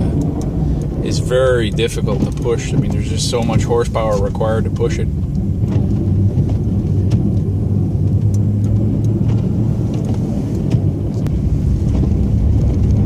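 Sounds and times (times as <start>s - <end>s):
light clicks and rattles: 0.0s - 13.0s
truck engine droning: 0.0s - 13.0s.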